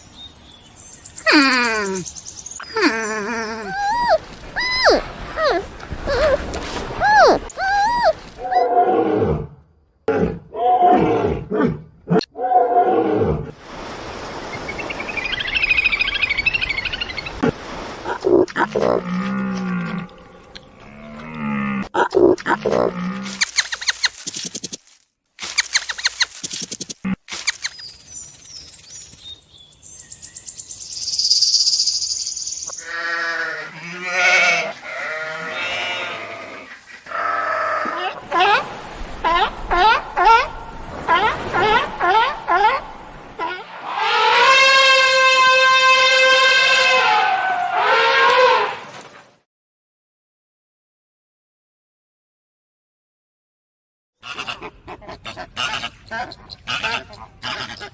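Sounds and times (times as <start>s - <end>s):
animal harsh calls: 2.7s - 8.7s
livestock bleating: 32.8s - 37.5s.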